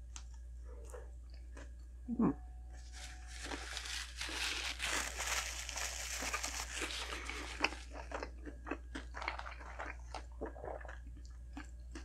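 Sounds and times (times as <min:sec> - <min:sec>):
chewing burger crunching: 0:03.4 - 0:12.0.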